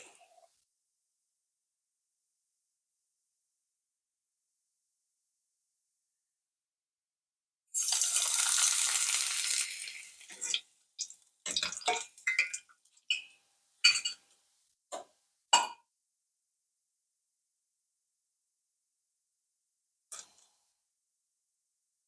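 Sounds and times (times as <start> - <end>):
kitchen hiss: 7.8 - 10.6.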